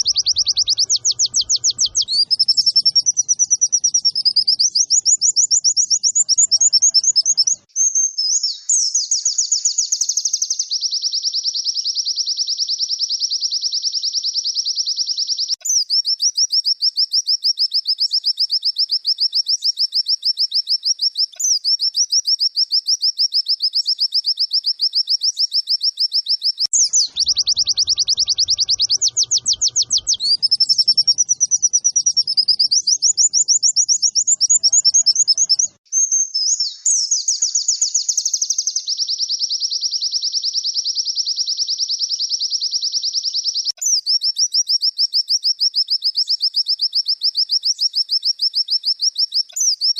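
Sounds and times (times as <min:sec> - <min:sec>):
bird warbling: 0:00.0 - 0:07.6, 0:26.7 - 0:35.8
fast high bird trill: 0:00.0 - 0:07.7, 0:26.7 - 0:35.8.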